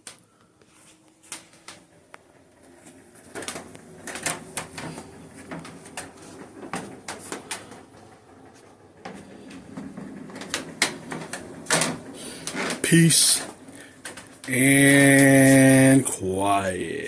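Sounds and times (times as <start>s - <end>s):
sharp clicks and knocks: 1.3s - 14.5s.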